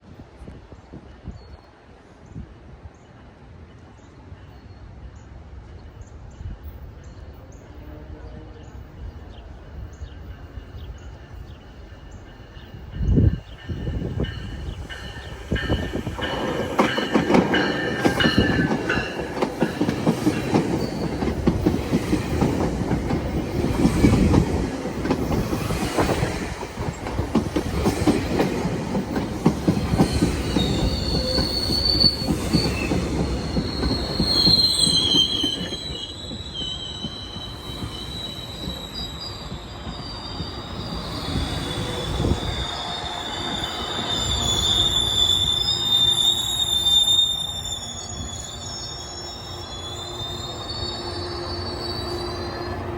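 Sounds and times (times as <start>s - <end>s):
train rumbling: 5.2s - 52.9s
train wheels clacking on rail joints: 12.3s - 44.9s
wheel and brake squeal: 29.8s - 52.9s.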